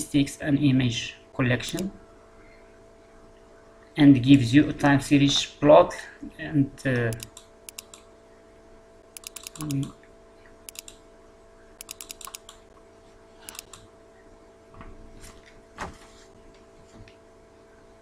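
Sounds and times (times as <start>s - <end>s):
faint steady hum: 0.0s - 18.0s
computer keyboard typing: 7.1s - 8.0s, 9.2s - 9.9s, 10.7s - 11.0s, 11.8s - 12.6s, 13.5s - 13.9s.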